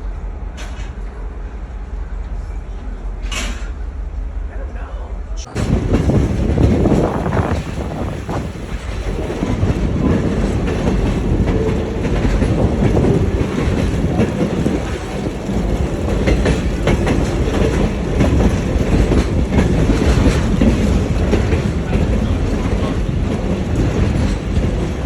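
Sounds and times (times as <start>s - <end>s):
train rumbling on rails: 0.0s - 25.0s
wheels clicking over rail joints: 5.6s - 25.0s.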